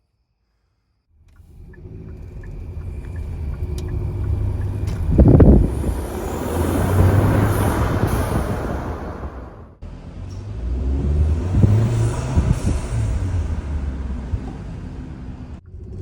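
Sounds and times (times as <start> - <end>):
car engine accelerating: 1.2 - 16.0
loud low rumble: 1.4 - 16.0
rising rushing noise: 1.9 - 9.8.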